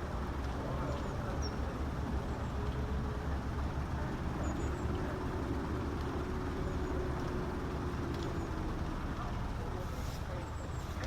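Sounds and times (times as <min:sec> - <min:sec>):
distant road traffic rumble: 0:00.0 - 0:11.0
small birds chirping: 0:00.7 - 0:08.7.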